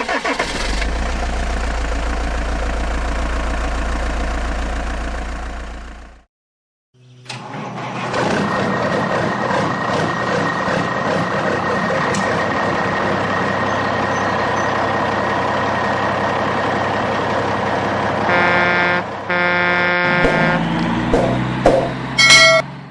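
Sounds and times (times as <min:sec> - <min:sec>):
truck engine running: 0:00.6 - 0:06.2, 0:07.9 - 0:22.9
truck horn blasts: 0:18.2 - 0:20.8.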